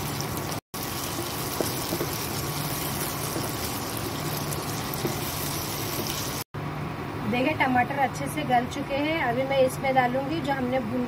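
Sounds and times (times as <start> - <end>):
cooktop humming: 0.0 - 6.5
vegetables sizzling in hot oil: 0.0 - 6.5
spatula stirring and scraping: 0.9 - 6.4.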